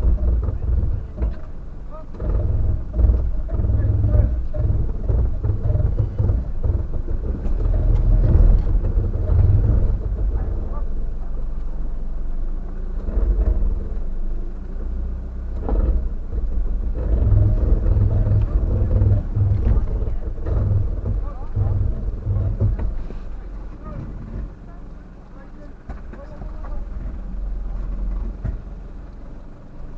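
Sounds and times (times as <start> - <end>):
vehicle engine at low revs: 0.0 - 29.9
knocks from bumpy ground: 15.6 - 24.6, 25.8 - 28.8.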